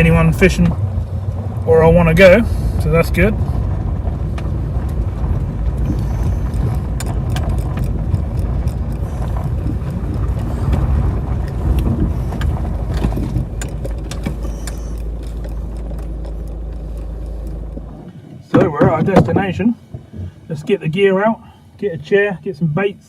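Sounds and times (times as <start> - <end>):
engine and road noise rumble: 0.0 - 23.0
light clicks and knocks: 4.0 - 21.0.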